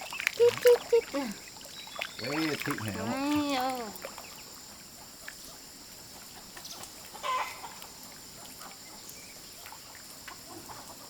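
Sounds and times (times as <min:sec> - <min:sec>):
chickens clucking: 0:00.3 - 0:01.4, 0:06.2 - 0:09.0, 0:10.3 - 0:11.0.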